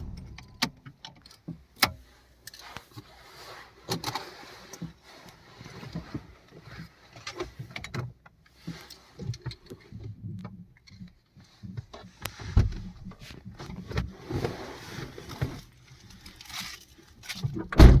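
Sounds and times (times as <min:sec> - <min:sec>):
heavy thump: 0:00.0 - 0:00.8.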